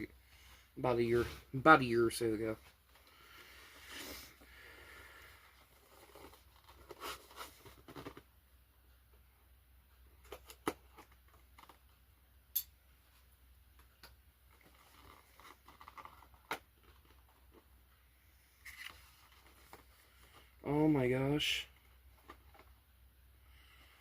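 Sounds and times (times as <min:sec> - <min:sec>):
packaging rustling: 0:05.8 - 0:08.2, 0:14.5 - 0:17.5.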